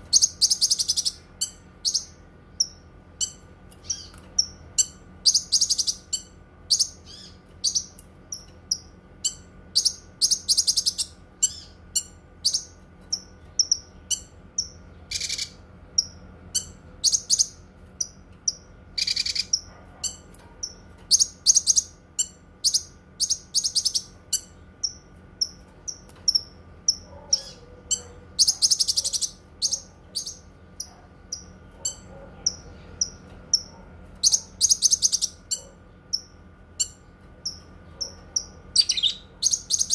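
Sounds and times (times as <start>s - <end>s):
songbird chirping and trilling: 0.0s - 39.9s.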